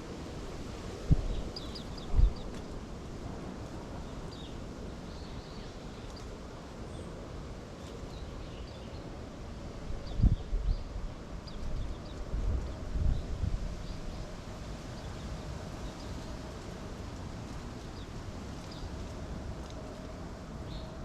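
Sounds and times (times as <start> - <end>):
wind gusts on microphone: 0.0 - 21.0
small birds chirping: 1.2 - 2.8, 3.9 - 7.2, 7.8 - 9.2, 10.0 - 16.6, 17.5 - 19.1.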